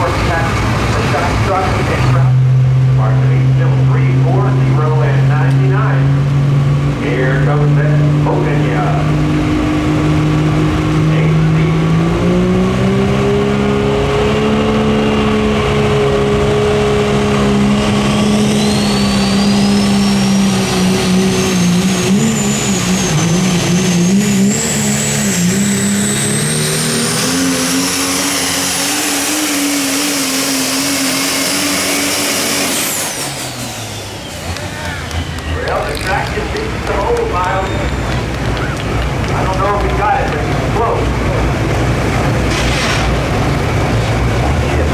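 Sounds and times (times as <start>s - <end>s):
diesel truck engine at full power: 0.0s - 44.9s
high turbo whistle: 17.4s - 35.8s, 37.4s - 38.8s.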